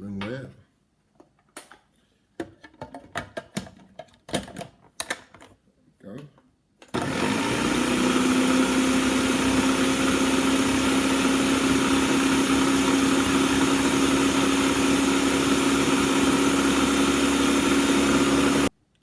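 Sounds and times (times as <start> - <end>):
blender whining: 6.9 - 18.7.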